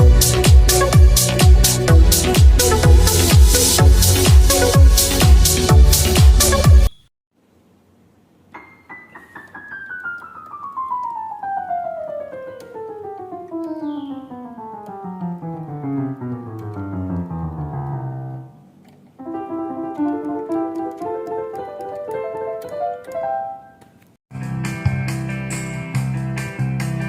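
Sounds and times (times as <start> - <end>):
piano notes descending: 0.0 - 6.9, 8.5 - 23.8
piano chords: 0.0 - 7.1, 8.5 - 23.8.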